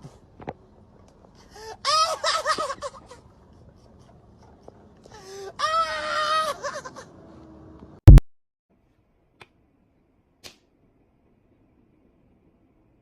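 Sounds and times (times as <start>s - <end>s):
high wailing cry: 1.7s - 3.2s, 5.3s - 7.1s.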